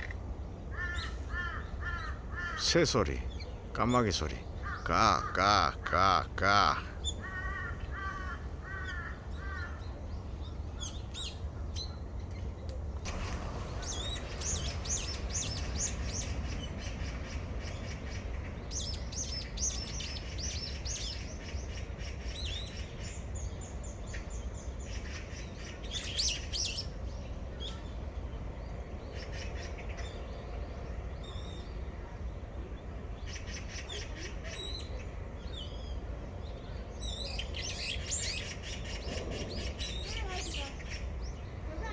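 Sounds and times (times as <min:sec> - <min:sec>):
songbirds chirping and twittering: 0:00.0 - 0:41.9
crows cawing: 0:00.7 - 0:03.2, 0:04.2 - 0:09.8.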